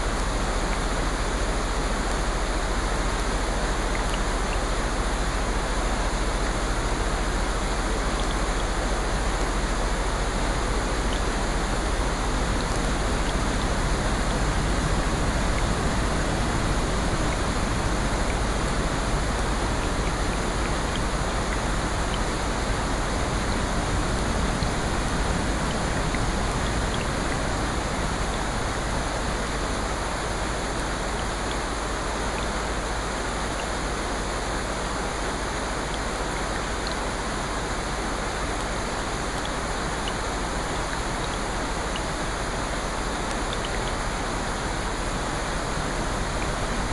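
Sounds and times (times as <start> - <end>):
steady rain hiss: 0.0 - 46.9
raindrop ticks: 3.8 - 4.7, 10.9 - 46.9.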